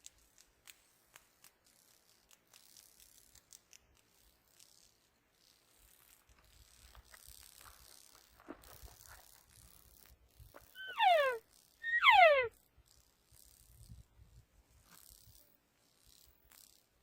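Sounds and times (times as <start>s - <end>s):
elk cow mews: 10.6s - 12.5s.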